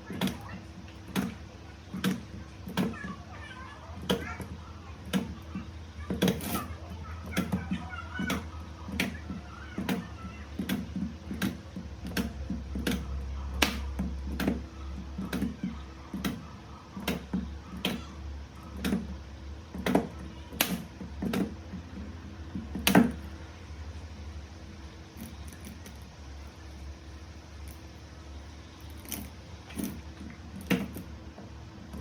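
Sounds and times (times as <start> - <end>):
steady low hum: 0.0 - 32.0
spot welder snapping: 0.1 - 3.0, 19.8 - 21.5.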